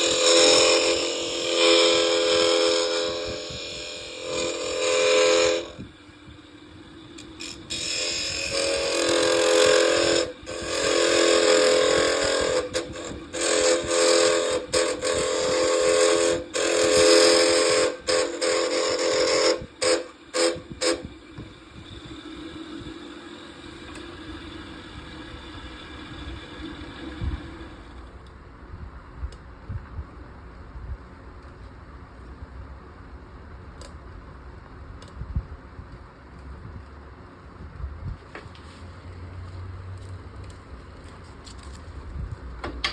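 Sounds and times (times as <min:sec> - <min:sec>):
turning tool cutting wood: 0:00.0 - 0:28.2
wood lathe humming: 0:00.0 - 0:28.2.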